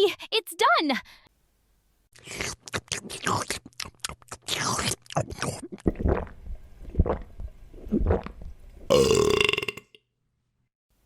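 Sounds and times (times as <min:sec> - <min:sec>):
burps: 0:08.9 - 0:10.0.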